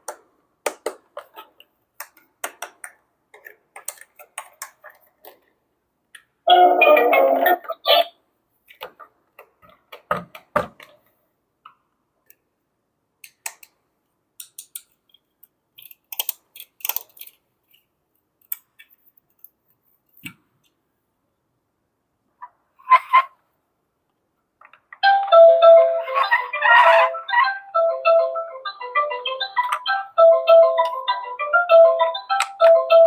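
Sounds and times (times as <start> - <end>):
plastic toy pieces clicking: 14.4 - 17.8.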